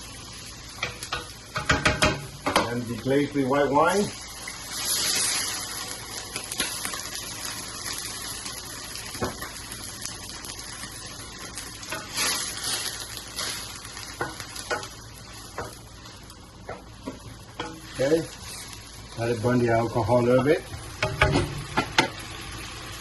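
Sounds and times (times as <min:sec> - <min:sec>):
sauce sizzling in a pan: 0:00.0 - 0:23.0
utensil knocking on a pan: 0:00.8 - 0:02.7, 0:20.7 - 0:22.1.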